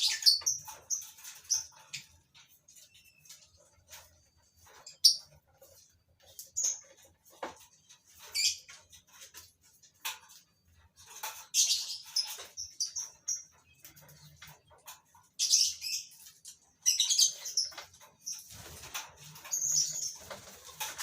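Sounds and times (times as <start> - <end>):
lovebirds chirping: 0.0 - 5.4.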